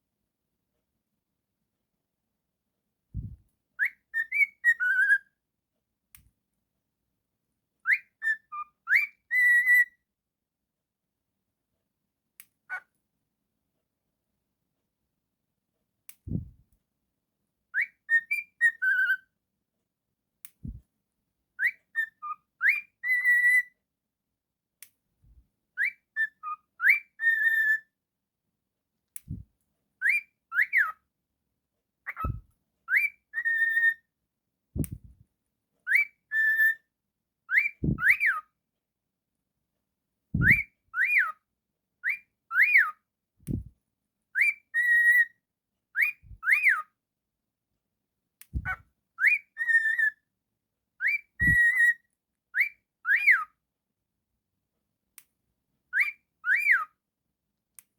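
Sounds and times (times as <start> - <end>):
cockatiel whistling a tune: 3.2 - 5.3, 7.8 - 10.0, 17.8 - 19.3, 21.6 - 23.8, 25.8 - 27.9, 30.0 - 31.0, 32.1 - 34.1, 35.9 - 36.8, 37.5 - 38.4, 40.4 - 41.4, 42.0 - 43.0, 44.4 - 45.4, 46.0 - 46.9, 48.6 - 50.2, 51.0 - 53.5, 55.9 - 56.9.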